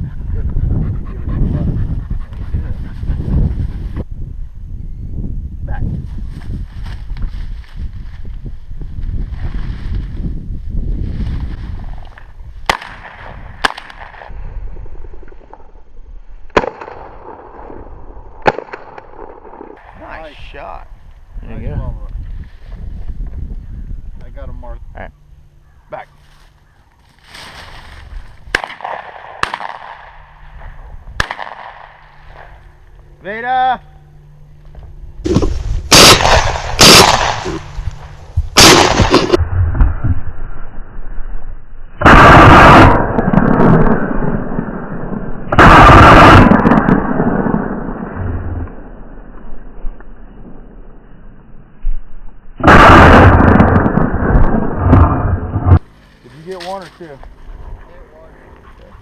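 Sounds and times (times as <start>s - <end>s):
wind noise: 0.0s - 18.4s, 19.2s - 25.2s, 27.2s - 32.8s, 34.7s - 55.9s, 57.3s - 59.0s
shotgun shots with echo: 12.7s - 14.3s, 28.5s - 30.2s, 31.2s - 32.5s, 35.3s - 37.7s, 38.6s - 39.4s.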